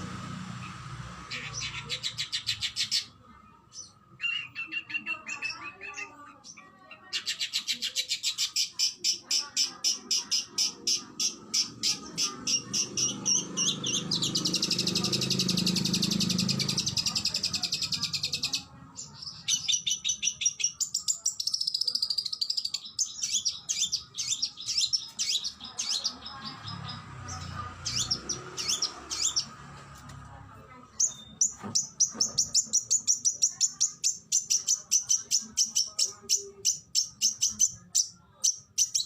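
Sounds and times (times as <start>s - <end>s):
songbird singing and trilling: 0.6s - 29.8s, 30.9s - 39.0s.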